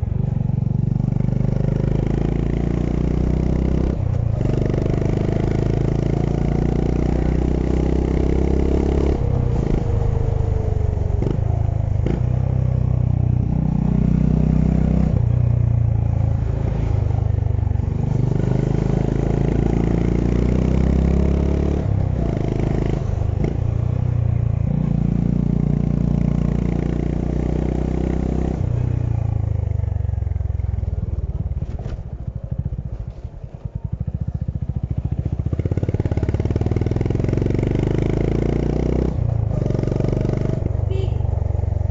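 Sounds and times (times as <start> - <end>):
motorcycle engine under way: 17.2 - 41.9.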